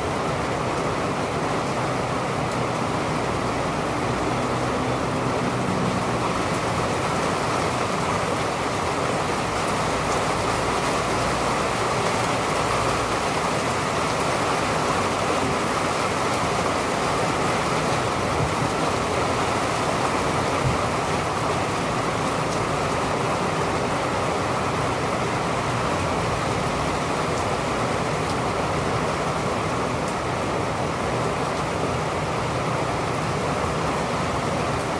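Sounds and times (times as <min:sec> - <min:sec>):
rain falling: 0:00.0 - 0:34.9.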